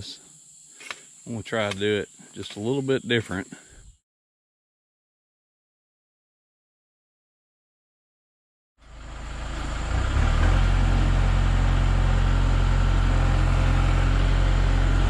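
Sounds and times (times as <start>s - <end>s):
gasoline engine running: 8.8s - 15.0s.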